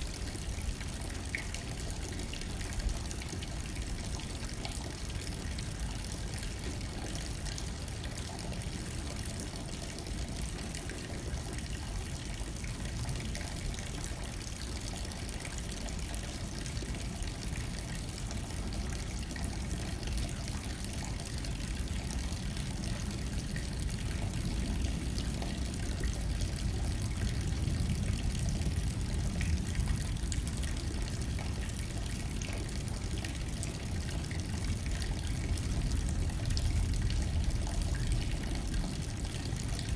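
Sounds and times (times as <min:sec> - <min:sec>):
rain hitting window: 0:00.0 - 0:39.9
low wind rumble: 0:21.5 - 0:39.9.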